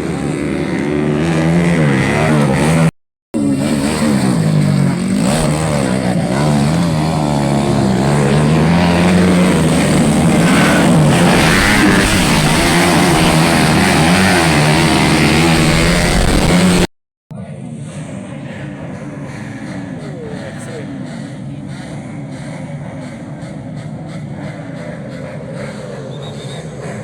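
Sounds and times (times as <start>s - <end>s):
dirt bike engines revving: 0.0s - 27.0s.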